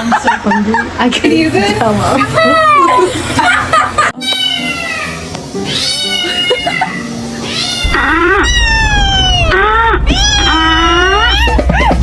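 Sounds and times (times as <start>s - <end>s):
cat meowing loudly: 4.2s - 11.8s.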